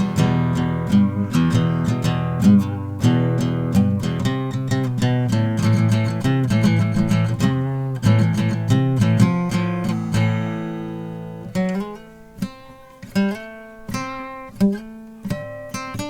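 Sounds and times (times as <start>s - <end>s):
acoustic guitar strumming and picking: 0.0s - 16.0s.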